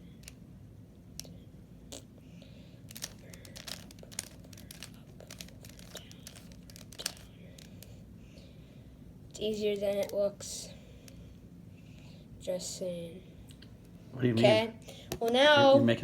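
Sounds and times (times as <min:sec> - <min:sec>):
low steady hum: 0:00.0 - 0:16.0
puzzle cube clicking as twisted: 0:02.9 - 0:07.9.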